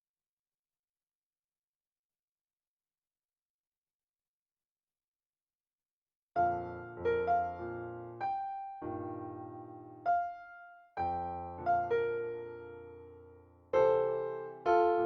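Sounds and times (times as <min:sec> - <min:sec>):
electronic keyboard piano melody: 0:06.4 - 0:15.0.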